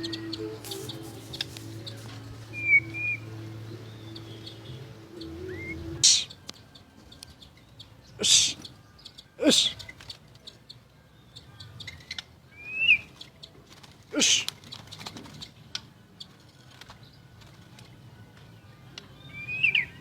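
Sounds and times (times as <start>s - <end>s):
rising whistled bird note: 2.5s - 3.3s
harsh noisy bird call: 5.2s - 6.4s, 8.2s - 8.8s.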